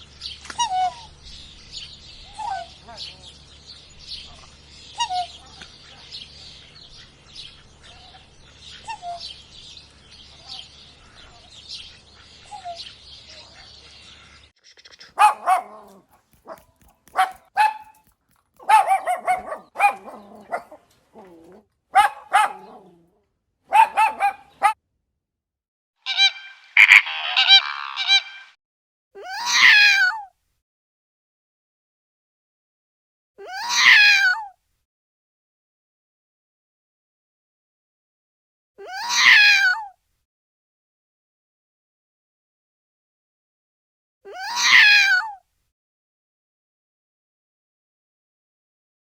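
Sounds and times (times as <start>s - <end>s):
dense high chattering calls: 0.5s - 20.9s, 26.1s - 28.6s
loud animal calls: 14.6s - 16.6s, 26.0s - 28.6s
buzzy animal call: 14.6s - 16.9s, 26.0s - 28.6s.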